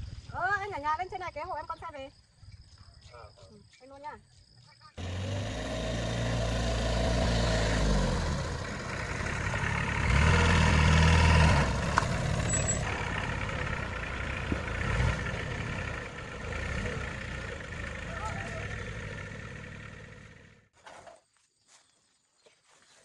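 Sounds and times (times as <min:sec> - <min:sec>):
vehicle engine at low revs: 0:05.0 - 0:20.7.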